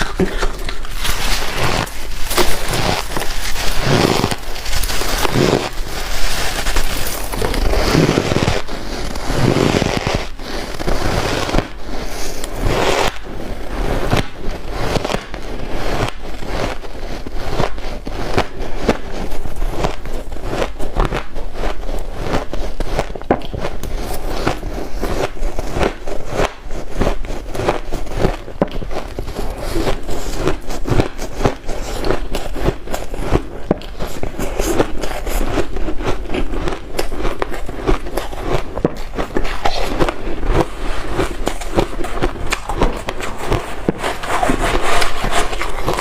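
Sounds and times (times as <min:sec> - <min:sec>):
ice being chewed: 0:00.0 - 0:09.7, 0:27.0 - 0:46.0.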